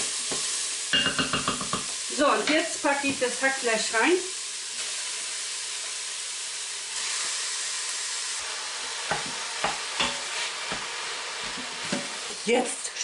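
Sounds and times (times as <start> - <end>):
meat sizzling in a pot: 0.0 - 13.0
knocks against the pot: 1.0 - 1.9, 9.1 - 10.8.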